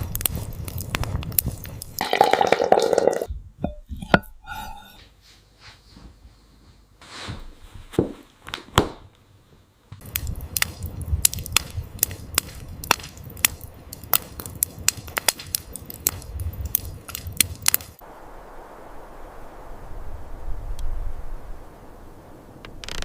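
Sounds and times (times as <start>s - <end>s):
wood fire crackling: 0.0s - 4.9s, 9.9s - 23.0s.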